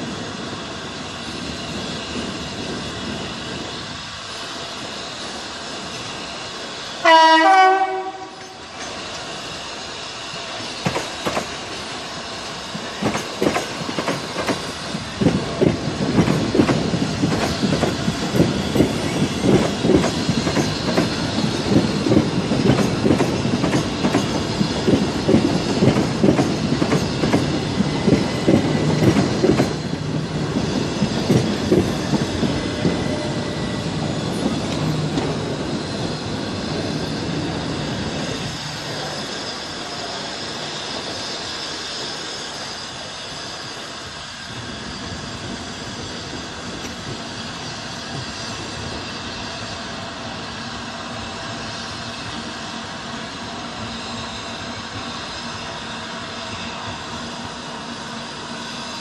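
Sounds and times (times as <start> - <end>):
train running noise with hum: 0.0 - 59.0
train wheels clattering over joints: 10.5 - 42.8.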